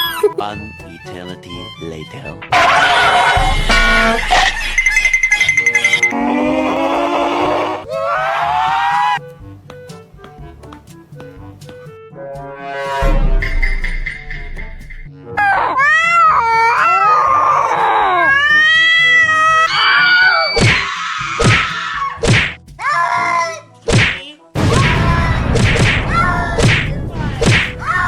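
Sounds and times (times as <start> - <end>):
wailing gliding cries: 2.6 - 9.2, 15.4 - 22.2
smacks and thuds: 20.6 - 22.6, 23.9 - 28.0.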